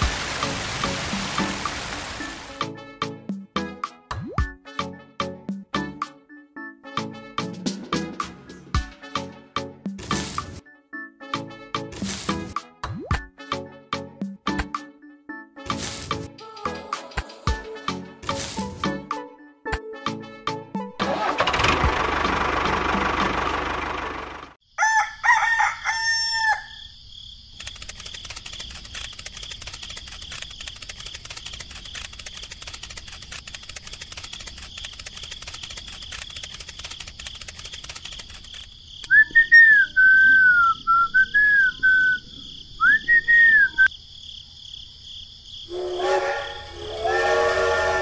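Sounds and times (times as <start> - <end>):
rooster crowing: 24.7 - 26.9
whistled birdsong: 39.1 - 43.9
train whistle: 45.7 - 48.0.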